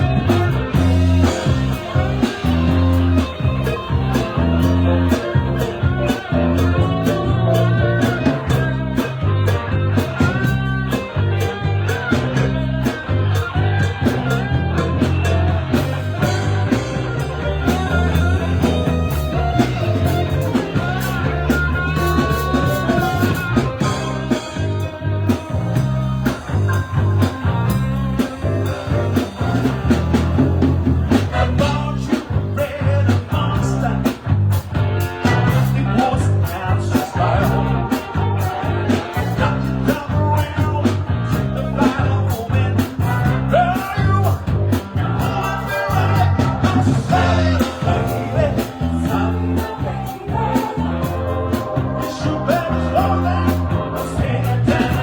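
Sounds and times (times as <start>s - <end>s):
lead guitar bending notes: 0.0s - 32.7s, 44.6s - 55.0s
blues-rock band playing: 0.0s - 55.0s.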